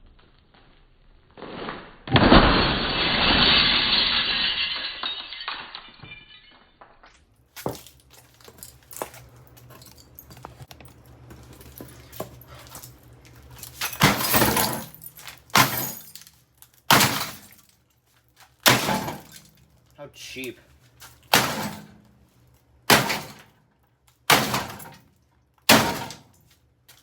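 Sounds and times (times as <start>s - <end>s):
muffled slowed-down glass shattering: 2.0s - 7.2s
glass breaking crashes: 2.1s - 9.2s, 13.6s - 17.7s, 18.6s - 19.6s, 21.2s - 22.0s, 22.9s - 23.5s, 24.3s - 25.1s, 25.7s - 26.4s.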